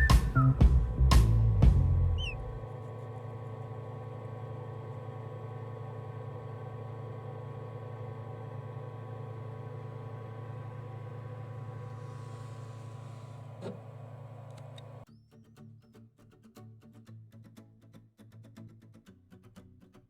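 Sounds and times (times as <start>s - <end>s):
low machine hum: 0.0s - 15.1s
high falling chirp: 2.1s - 2.6s.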